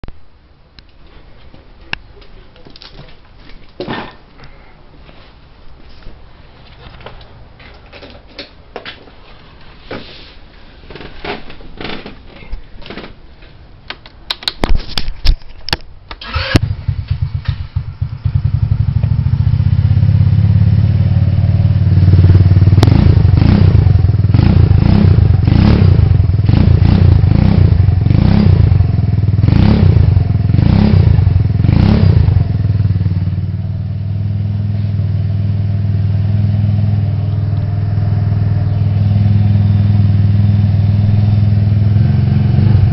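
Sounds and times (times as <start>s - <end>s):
scooter engine running loudly: 16.6s - 33.6s, 34.3s - 42.9s.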